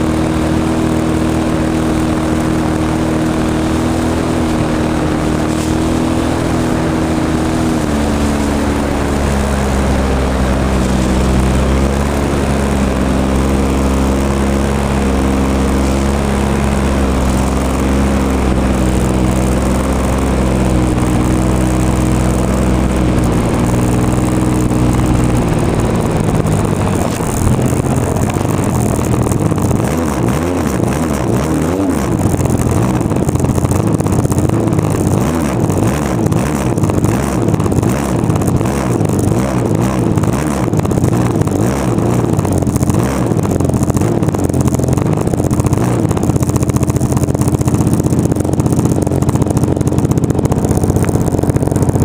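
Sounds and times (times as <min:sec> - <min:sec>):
wind rush: 0:00.0 - 0:30.6
model airplane engine running: 0:00.0 - 0:52.0.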